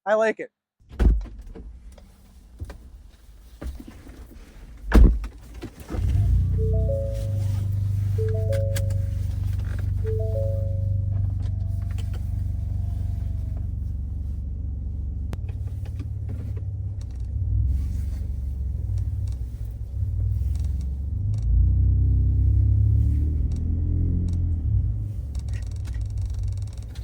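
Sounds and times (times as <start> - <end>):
truck exhaust drone while driving: 6.0 - 27.0
three-note chime: 6.2 - 11.4.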